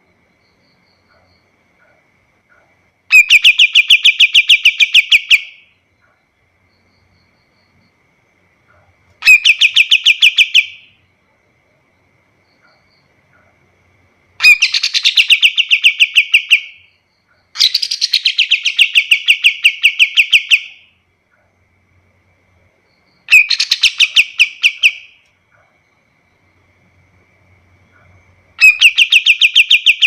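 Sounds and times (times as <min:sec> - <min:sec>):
bird singing rapid rattling song: 0:03.1 - 0:05.7, 0:09.2 - 0:10.9, 0:14.4 - 0:20.9, 0:23.1 - 0:25.2, 0:28.6 - 0:30.0.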